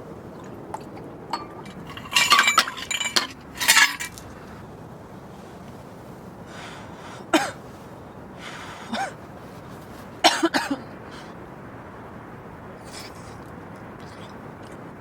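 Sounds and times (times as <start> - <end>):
person coughing: 7.3 - 7.6, 8.9 - 9.2, 10.2 - 10.9.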